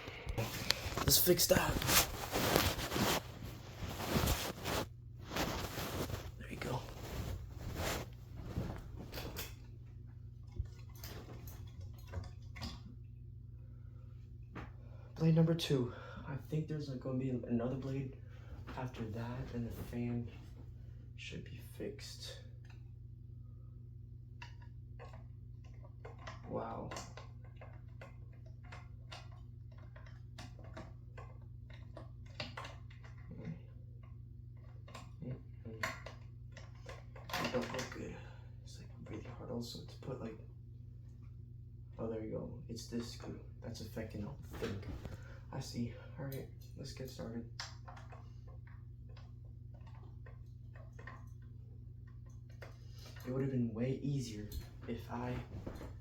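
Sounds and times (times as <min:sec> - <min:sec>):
steady low hum: 0:00.0 - 0:32.2, 0:32.8 - 0:56.0.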